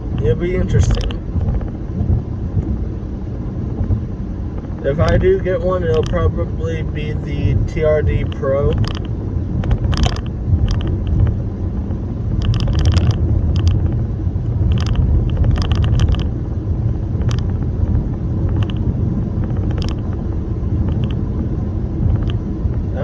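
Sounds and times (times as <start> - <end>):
light clicks and rattles: 0.0 - 1.8, 4.6 - 16.4, 17.2 - 17.7, 18.4 - 20.2, 20.8 - 21.3, 22.0 - 22.5
car road and engine rumble: 0.0 - 23.0.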